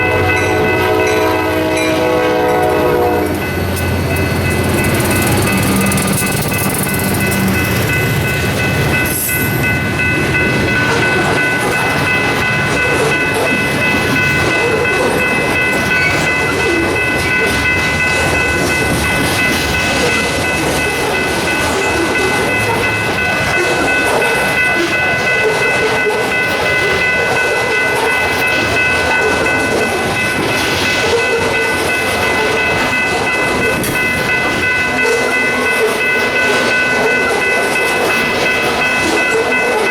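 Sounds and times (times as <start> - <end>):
train wheels rumbling on rails: 0.0 - 39.9
high-pitched ringing: 2.9 - 39.9.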